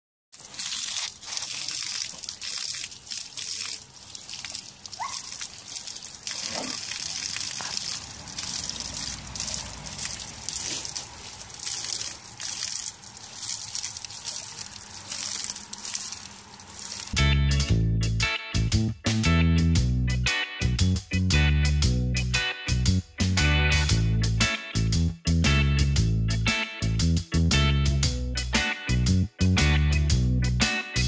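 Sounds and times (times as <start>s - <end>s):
hose water spraying and splashing: 0.3s - 17.2s
bear pawing at water: 0.4s - 17.2s.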